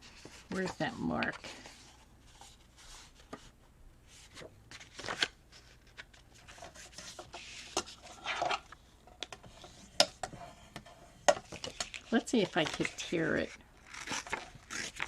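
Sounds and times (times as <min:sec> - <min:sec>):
paper rustling: 0:04.1 - 0:08.7, 0:11.5 - 0:15.0.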